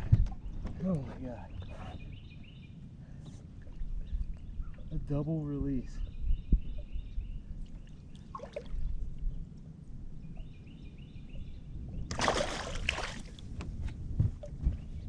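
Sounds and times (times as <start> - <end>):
low rumble of water and wind: 0.0 - 15.0
rush of splashing water: 12.1 - 13.4.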